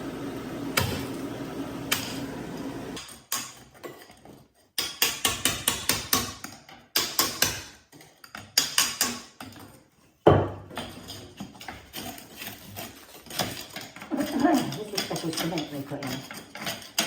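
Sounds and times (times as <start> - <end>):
hammer chipping at fireplace: 4.8 - 9.4.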